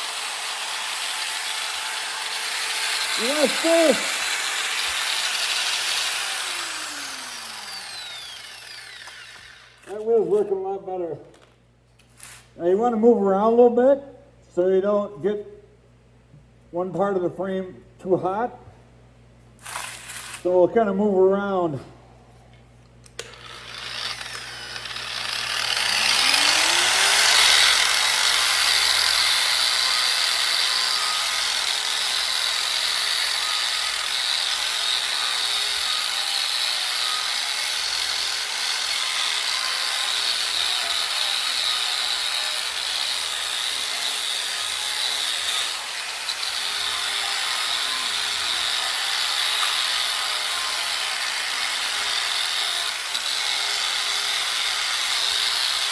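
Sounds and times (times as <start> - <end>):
grinding wheel on steel: 0.0 - 9.9, 23.4 - 55.9
power tool spinning up: 0.0 - 10.0, 19.6 - 20.4, 23.1 - 55.9.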